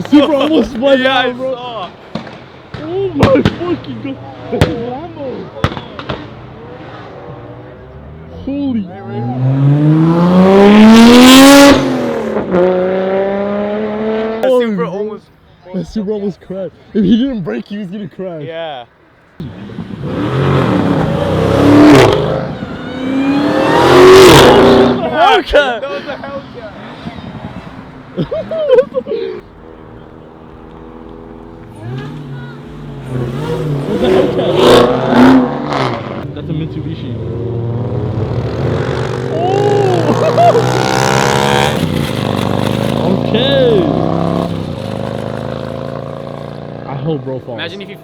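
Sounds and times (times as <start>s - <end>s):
car engine revving past: 5.2s - 14.4s, 19.4s - 25.4s, 29.6s - 47.4s.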